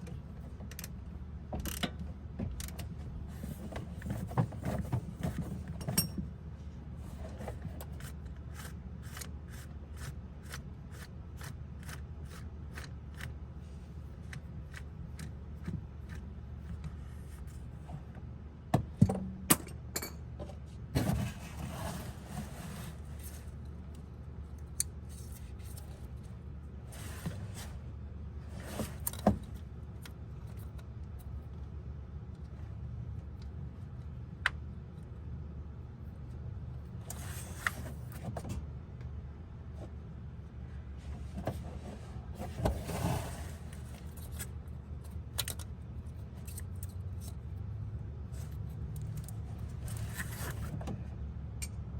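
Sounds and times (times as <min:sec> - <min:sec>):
steady low hum: 0:00.0 - 0:51.9
metallic clanks of tools: 0:19.5 - 0:20.5.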